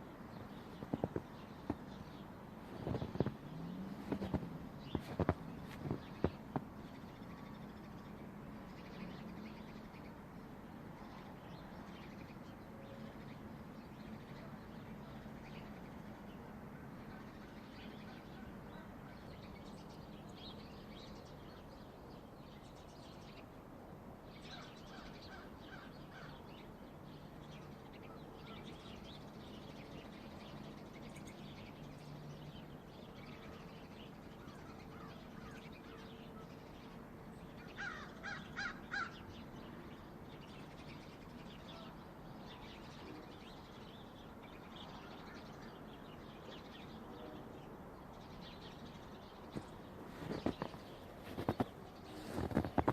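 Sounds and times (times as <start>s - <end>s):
loud harsh bird calls: 37.6s - 39.5s
faint bird chirps: 48.1s - 52.9s.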